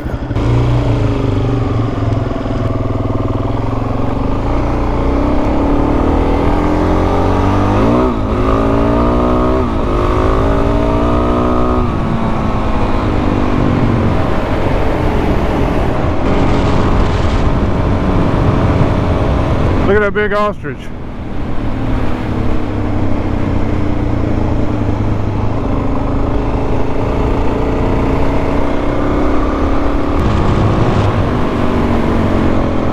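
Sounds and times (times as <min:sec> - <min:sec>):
dirt bike engine running: 0:00.0 - 0:20.0, 0:23.5 - 0:32.9
wind noise: 0:01.6 - 0:20.0, 0:28.2 - 0:32.9.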